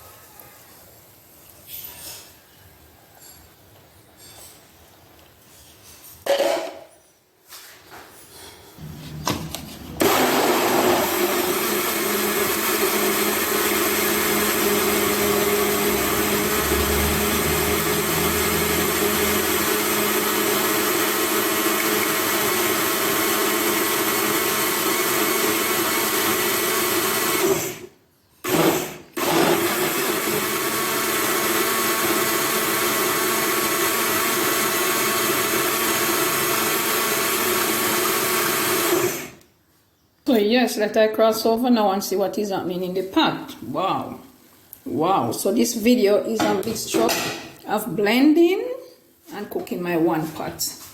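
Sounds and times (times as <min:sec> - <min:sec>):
electric blender running: 0:09.3 - 0:27.9, 0:28.5 - 0:39.4.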